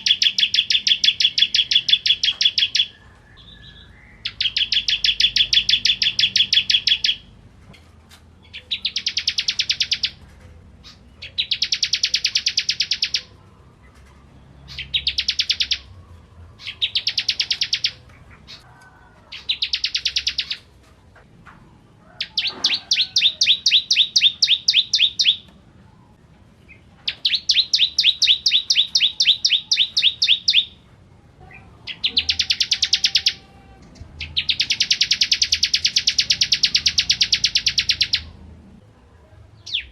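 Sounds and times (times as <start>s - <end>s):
bird singing rapid trills: 0.0s - 7.3s, 8.5s - 10.2s, 10.8s - 13.4s, 14.6s - 18.7s, 19.4s - 20.6s, 22.3s - 25.5s, 26.7s - 30.8s, 31.9s - 33.5s, 34.1s - 38.4s.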